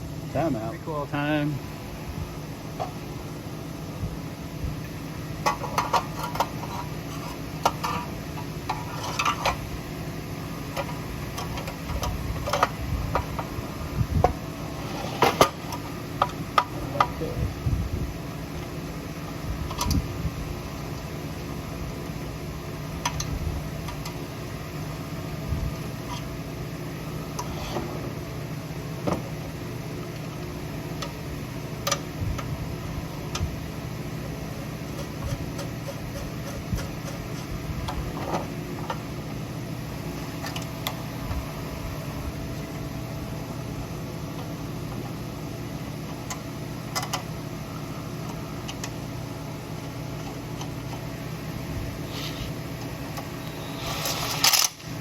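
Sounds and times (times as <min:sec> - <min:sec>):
fan hum: 0:00.0 - 0:55.0
tools clicking and knocking: 0:34.9 - 0:39.0.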